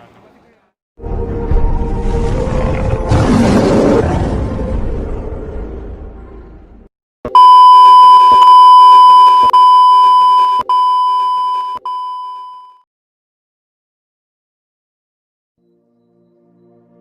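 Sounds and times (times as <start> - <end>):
rumbling effect: 1.0 - 6.9
long electronic beep: 7.3 - 12.8.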